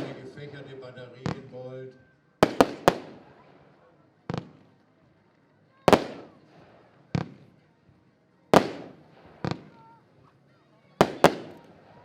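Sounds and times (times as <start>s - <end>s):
firework bangs echoing: 0.0s - 0.6s, 2.4s - 3.5s, 4.3s - 4.7s, 5.9s - 7.5s, 8.6s - 9.9s, 11.0s - 12.0s
faint voices: 0.0s - 12.0s.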